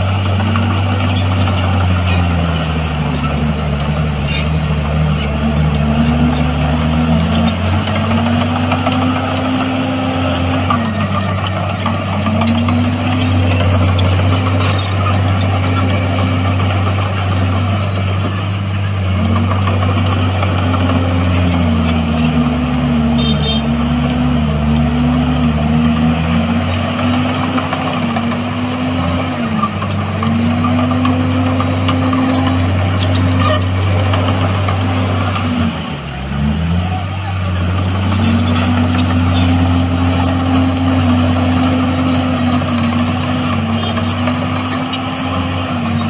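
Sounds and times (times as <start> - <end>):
heavy diesel engine under load: 0.0 - 46.0.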